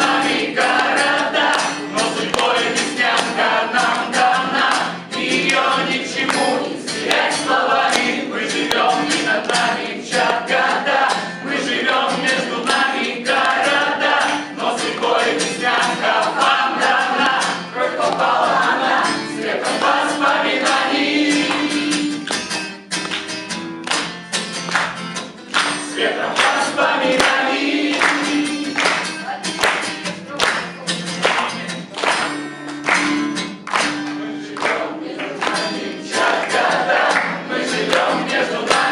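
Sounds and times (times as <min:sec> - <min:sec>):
group of voices singing: 0:00.0 - 0:22.4, 0:25.8 - 0:29.6, 0:34.1 - 0:38.9
sharp percussive beats: 0:00.0 - 0:34.1.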